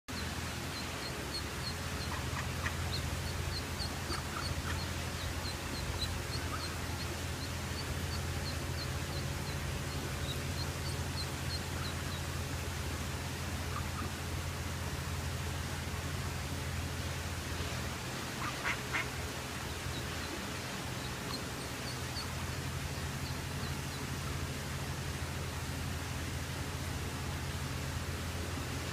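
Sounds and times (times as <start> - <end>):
duckling peeping: 0.1 - 12.7, 13.5 - 14.2, 17.7 - 24.6
steady low hum: 0.1 - 28.9.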